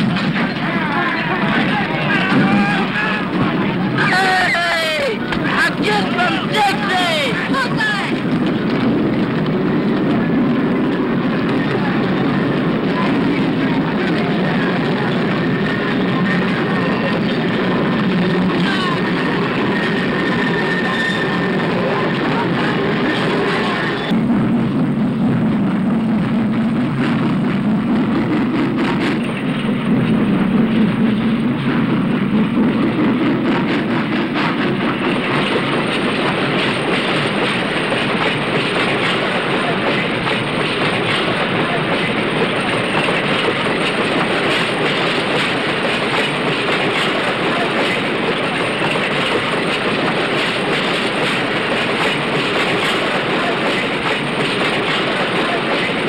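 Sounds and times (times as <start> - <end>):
steam freight train running: 0.0 - 56.0.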